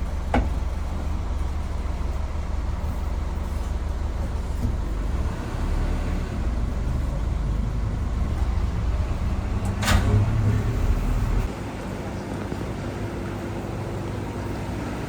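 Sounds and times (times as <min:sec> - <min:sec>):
airliner cabin engine drone: 0:00.0 - 0:15.0.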